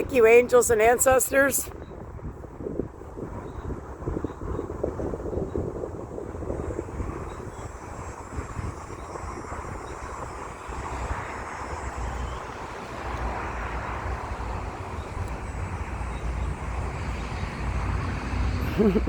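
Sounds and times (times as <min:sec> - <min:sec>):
distant engine rumble: 0:04.4 - 0:19.0.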